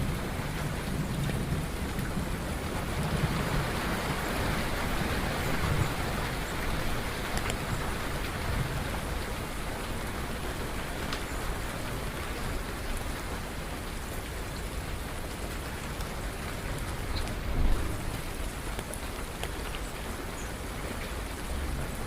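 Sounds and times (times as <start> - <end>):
steady rain falling: 0.0 - 22.0
low rumble: 16.8 - 18.7.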